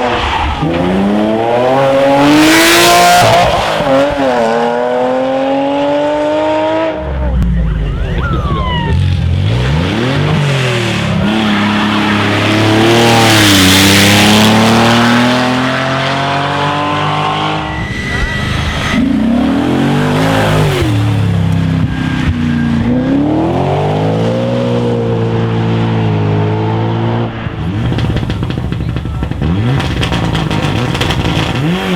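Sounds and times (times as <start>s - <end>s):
rally car engines revving hard: 0.0s - 31.9s
tyre and loose-surface noise: 27.7s - 31.9s.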